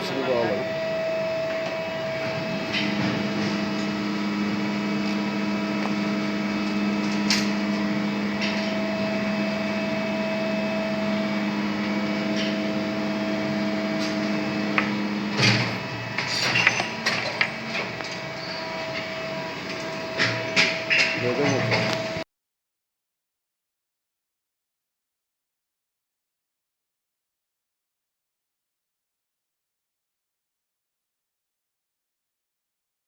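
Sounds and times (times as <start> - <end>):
motor humming: 0.0 - 22.2.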